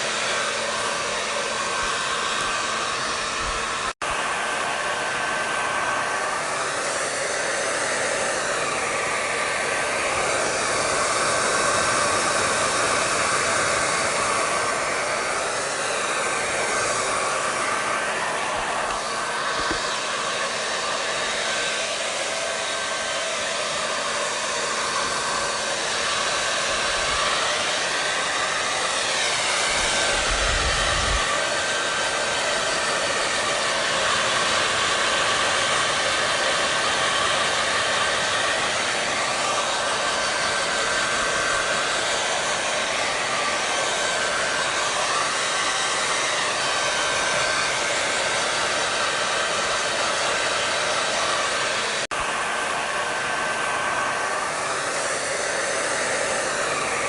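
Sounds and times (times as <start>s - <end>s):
hair dryer running: 0.0s - 57.0s.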